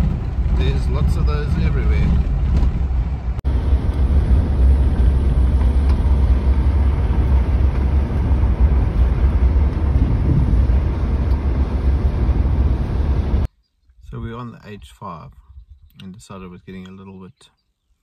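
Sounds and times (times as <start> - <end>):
car interior rumble: 0.0 - 13.5.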